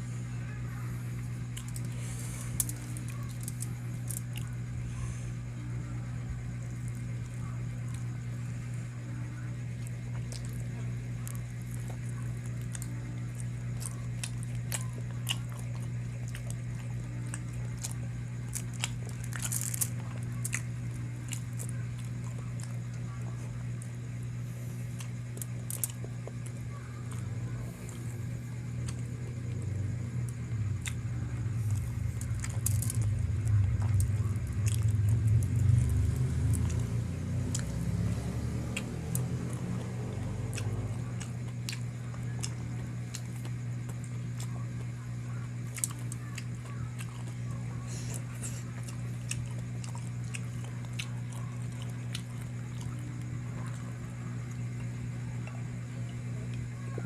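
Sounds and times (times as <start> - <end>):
steady low hum: 0.0 - 57.0
chewing and biting food: 1.1 - 4.7, 9.7 - 57.0
low rumble: 27.2 - 41.3.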